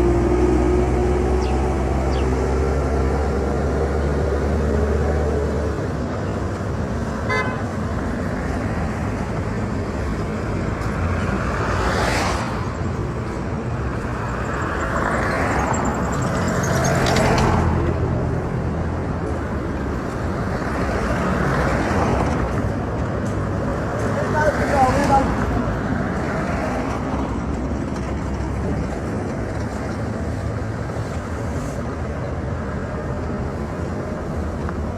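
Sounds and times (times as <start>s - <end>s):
vehicles driving past: 0.0s - 34.9s
car horn tooting: 7.3s - 7.7s.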